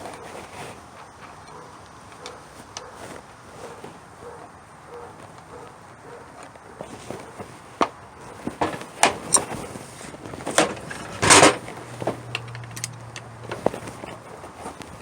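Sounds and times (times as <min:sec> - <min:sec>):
metal clicks and clatter: 0:06.4 - 0:15.0.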